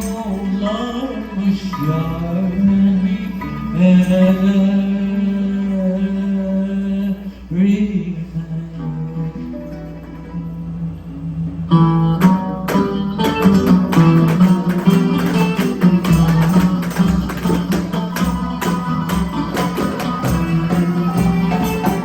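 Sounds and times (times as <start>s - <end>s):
hand percussion: 0.0s - 0.9s, 12.1s - 22.0s
plucked strings: 0.0s - 6.9s, 8.4s - 22.0s.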